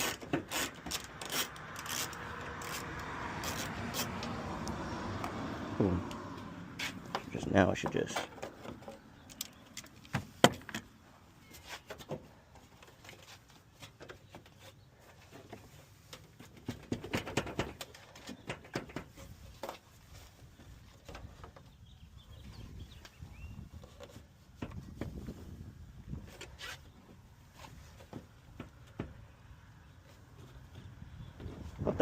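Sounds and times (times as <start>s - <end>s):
hand tools clicking and knocking: 0.0s - 4.3s, 15.4s - 19.8s.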